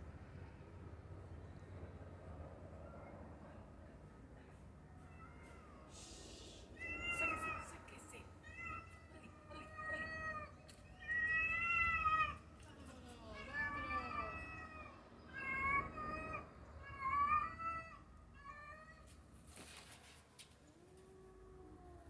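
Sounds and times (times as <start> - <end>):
cat meowing: 6.8 - 7.8, 13.2 - 19.1.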